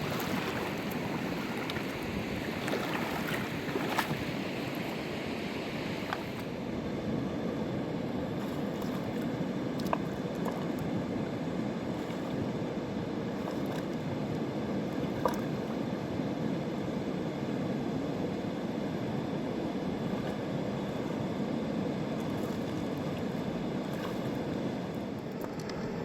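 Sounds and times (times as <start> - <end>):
river rushing: 0.0 - 6.0.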